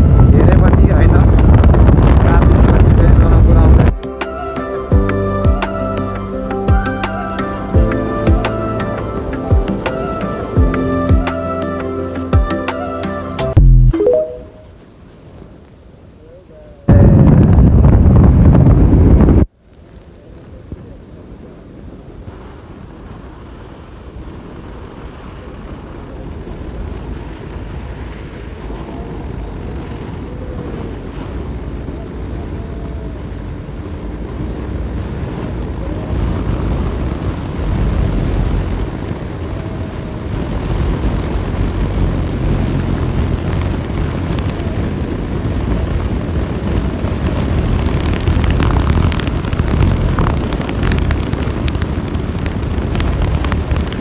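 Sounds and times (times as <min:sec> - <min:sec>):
wind buffeting microphone: 0:00.0 - 0:13.6, 0:14.7 - 0:54.0
vehicle rumble: 0:00.0 - 0:14.0, 0:25.0 - 0:54.0.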